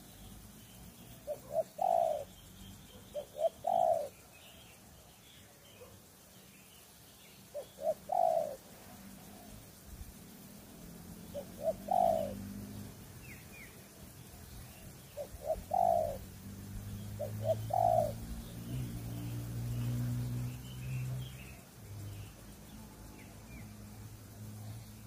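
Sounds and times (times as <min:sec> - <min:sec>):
small birds chirping: 0:00.0 - 0:25.0
dove cooing: 0:01.0 - 0:04.2, 0:07.5 - 0:09.6, 0:11.2 - 0:12.9, 0:14.6 - 0:22.3.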